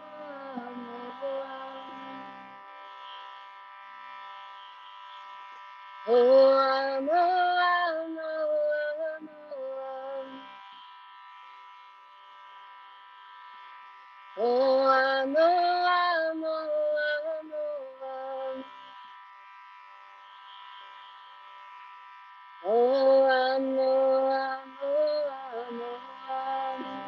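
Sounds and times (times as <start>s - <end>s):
person chanting melodically: 0.0s - 3.4s, 6.0s - 10.7s, 14.3s - 19.0s, 22.6s - 27.0s
steady buzzing drone: 0.0s - 27.0s.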